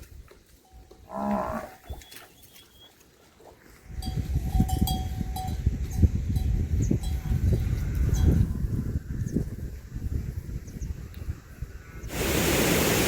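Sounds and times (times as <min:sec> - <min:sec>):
cow mooing: 0:01.1 - 0:01.8
livestock bell clinking: 0:03.9 - 0:07.4.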